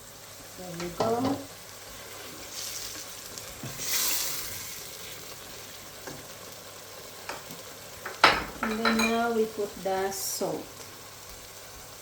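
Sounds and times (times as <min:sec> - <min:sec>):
sauce simmering and sizzling: 0:00.0 - 0:12.0.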